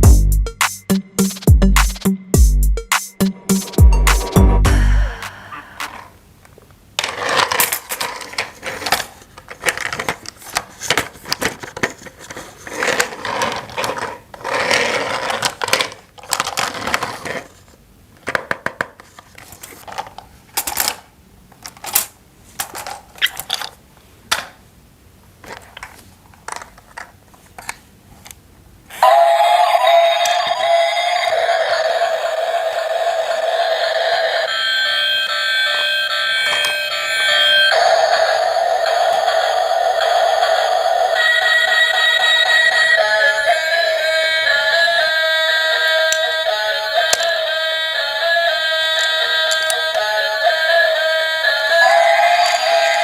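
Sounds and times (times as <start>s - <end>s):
plastic toy parts clattering: 7.0s - 24.6s, 25.4s - 28.4s, 47.1s - 47.3s, 49.0s - 49.9s.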